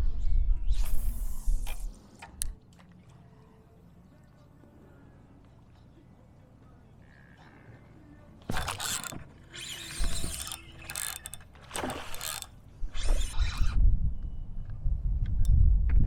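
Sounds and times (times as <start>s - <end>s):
fishing reel whirring and clicking: 0.7s - 2.6s, 8.4s - 13.8s.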